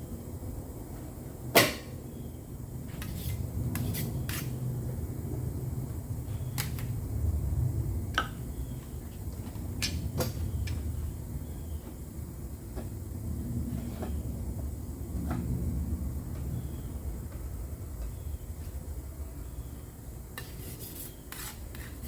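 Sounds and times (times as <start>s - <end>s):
low steady rumble: 0.0s - 21.0s
sharp knock: 1.6s - 1.9s.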